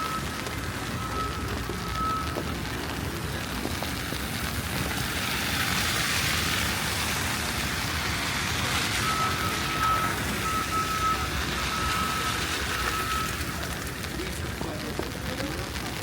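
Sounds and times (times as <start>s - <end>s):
high electronic beep: 0.0s - 2.5s, 9.0s - 13.6s
rumble of traffic engines: 0.0s - 16.0s.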